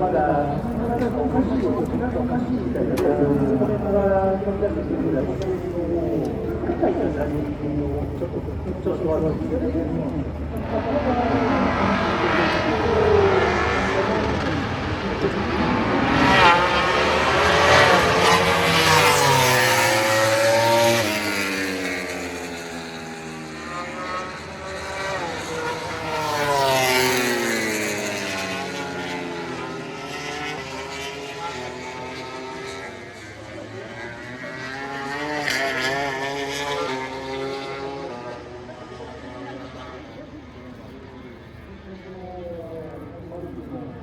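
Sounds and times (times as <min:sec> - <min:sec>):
racing motorcycles passing at high revs: 0:08.8 - 0:40.4.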